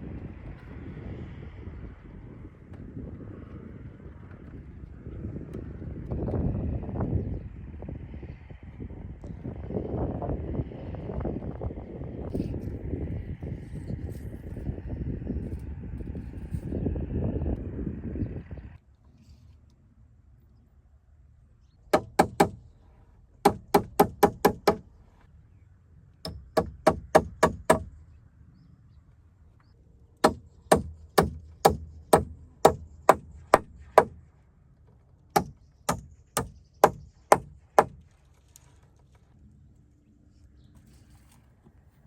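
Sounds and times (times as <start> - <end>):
hammer driving nails into timber: 22.0 - 22.6, 23.4 - 24.9, 26.3 - 28.0, 30.2 - 34.2, 35.4 - 38.0.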